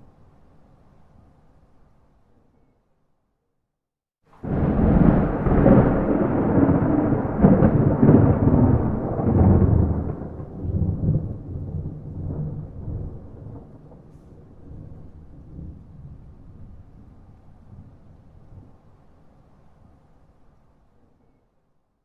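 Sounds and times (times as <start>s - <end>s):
thunder rumbling: 4.4s - 18.7s.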